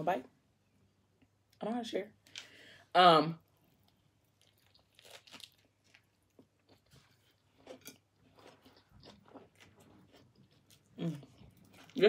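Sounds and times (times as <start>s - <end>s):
close-up chewing: 4.2s - 12.0s.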